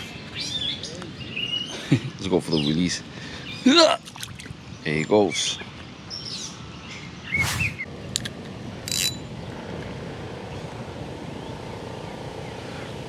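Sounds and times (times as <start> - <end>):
short hiss of line: 7.4 - 7.8
fishing reel clicks: 8.9 - 9.2
reel handle cranking: 8.9 - 9.2.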